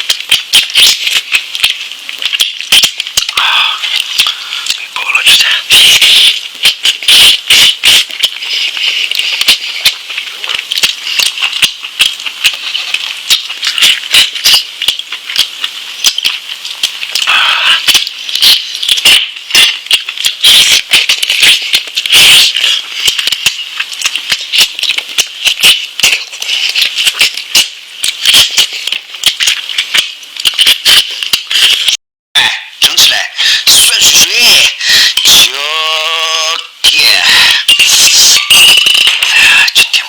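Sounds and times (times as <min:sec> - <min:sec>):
chewing and lip-smacking: 0:00.0 - 0:04.9, 0:06.0 - 0:31.9.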